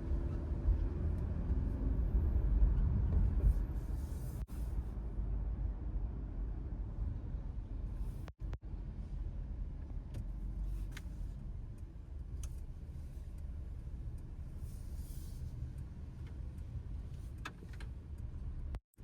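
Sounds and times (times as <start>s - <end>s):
road and tyre rumble: 0.0s - 19.0s.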